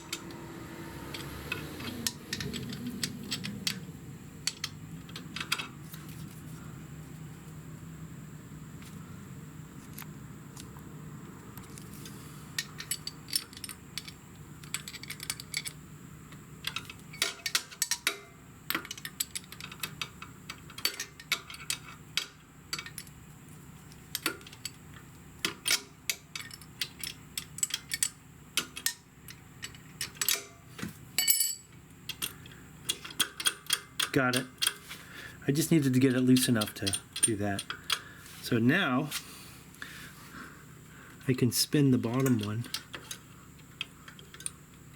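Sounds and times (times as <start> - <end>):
faint low hum: 0.0 - 33.0
wrench clicking on metal: 25.4 - 29.0, 31.3 - 34.8, 36.2 - 38.1.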